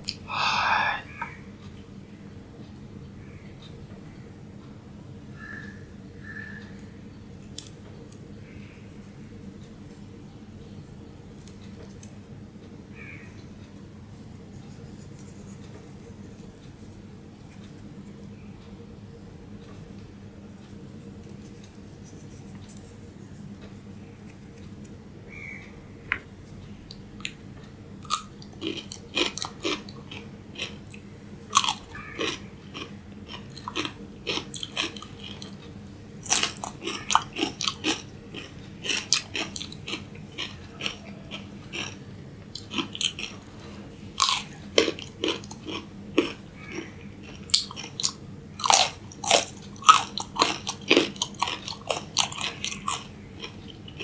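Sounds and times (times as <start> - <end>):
person crunching raw vegetables: 28.0 - 35.6, 36.2 - 43.5, 44.2 - 54.0.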